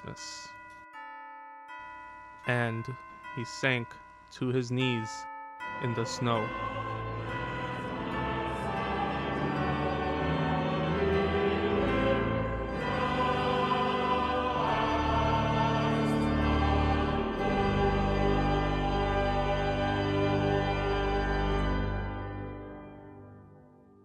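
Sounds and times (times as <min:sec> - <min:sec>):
choir singing held chords: 0:05.6 - 0:22.8.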